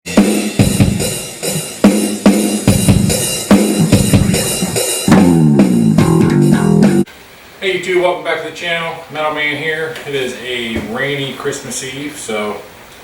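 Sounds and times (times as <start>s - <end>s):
drum kit beat: 0.0s - 7.1s
bass line: 2.6s - 7.1s.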